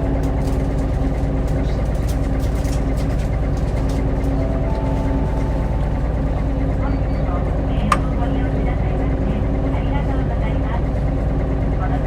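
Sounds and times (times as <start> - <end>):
bus engine rumble: 0.0 - 12.0
constant hum: 0.0 - 12.0.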